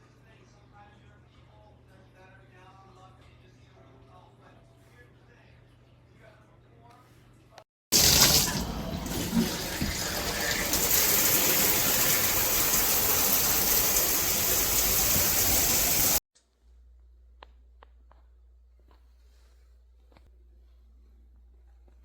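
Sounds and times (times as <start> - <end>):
shower spraying water: 7.9 - 16.2.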